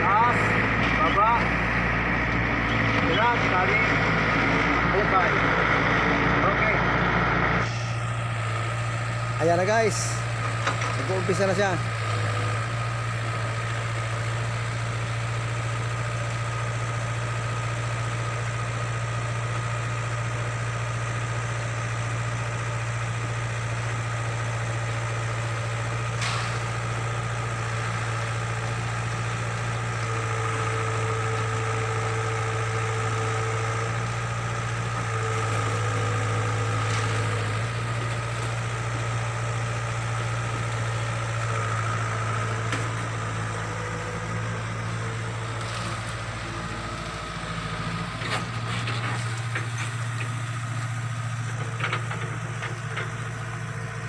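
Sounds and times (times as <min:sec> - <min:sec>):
excavator diesel engine: 0:00.0 - 0:54.0.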